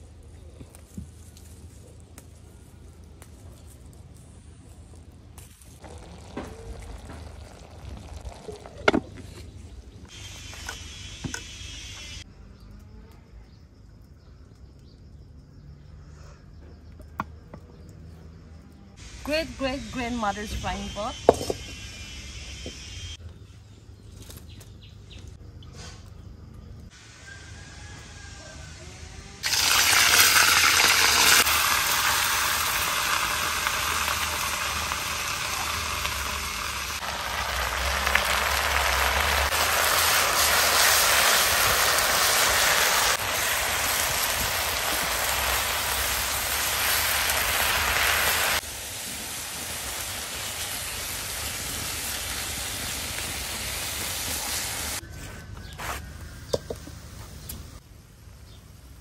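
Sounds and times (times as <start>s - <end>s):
greens sizzling in a wok: 3.2s - 12.3s, 18.9s - 23.2s, 26.9s - 55.0s.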